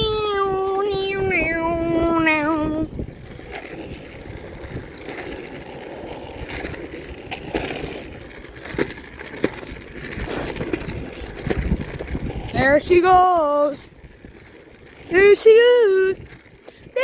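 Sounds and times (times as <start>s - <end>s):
bicycle clicks and rattles: 0.0s - 17.0s
bicycle tyres rumbling: 0.0s - 17.0s
wind on microphone: 0.0s - 17.0s.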